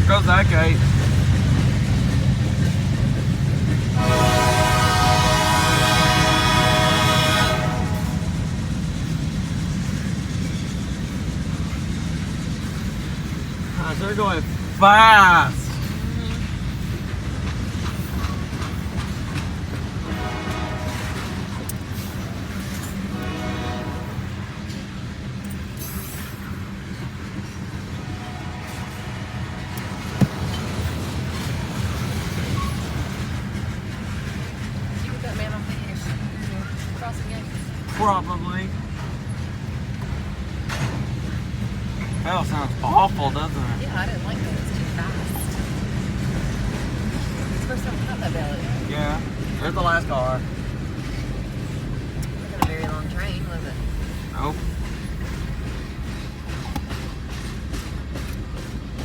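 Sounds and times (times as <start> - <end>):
train wheels rumbling on rails: 0.0 - 59.0
locomotive horn: 4.0 - 8.4, 20.0 - 21.8, 23.1 - 24.5, 27.9 - 30.8.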